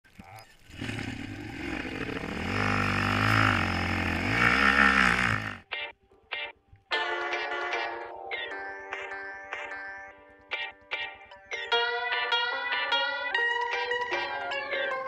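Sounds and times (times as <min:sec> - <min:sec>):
atv engine revving: 0:00.6 - 0:05.7.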